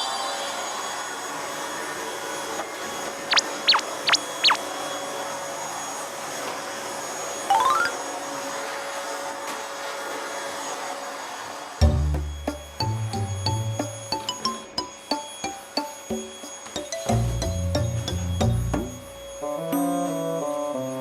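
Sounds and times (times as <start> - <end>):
vacuum cleaner running: 0.0 - 21.0
rising beeps: 3.3 - 4.6, 7.5 - 8.2, 11.9 - 19.5
sliding whistle-like tones: 3.3 - 4.6, 7.5 - 8.0, 11.9 - 20.4.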